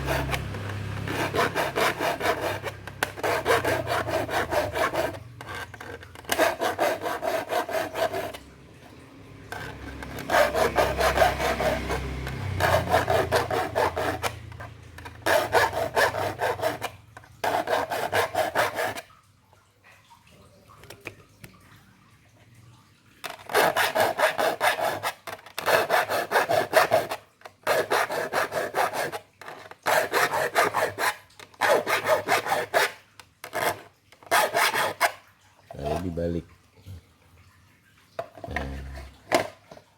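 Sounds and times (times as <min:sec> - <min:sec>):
metal file rasping on saw teeth: 0:00.0 - 0:08.4, 0:09.5 - 0:19.0, 0:23.4 - 0:35.2.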